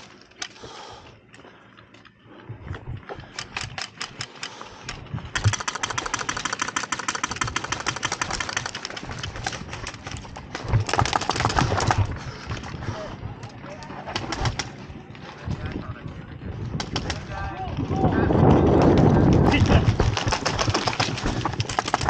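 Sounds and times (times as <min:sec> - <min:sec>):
airsoft gun full-auto bursts: 0:05.4 - 0:09.0.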